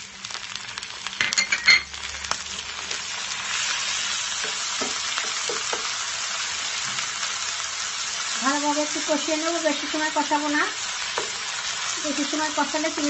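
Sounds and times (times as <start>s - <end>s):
food sizzling in oil: 0.0s - 13.0s
wooden spoon knocking on pan: 4.4s - 5.9s.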